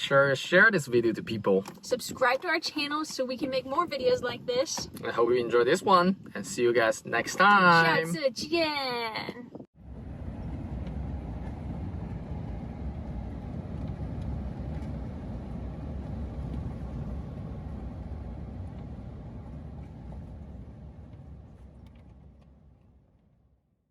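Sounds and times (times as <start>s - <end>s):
vehicle road noise rumble: 9.2s - 23.7s.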